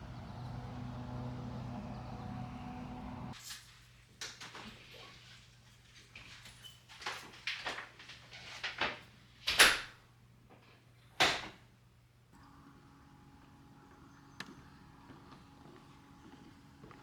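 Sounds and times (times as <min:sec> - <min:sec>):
steady low hum: 0:00.0 - 0:03.4.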